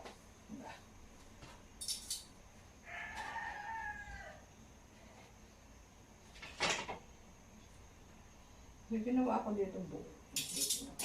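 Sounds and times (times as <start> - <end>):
rooster crowing: 2.8 - 4.6.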